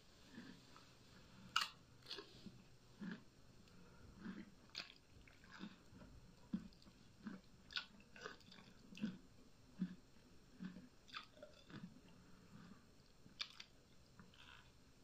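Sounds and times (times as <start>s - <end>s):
chewing noodles with wet smacks: 4.2s - 9.2s, 10.6s - 12.6s, 13.4s - 14.7s.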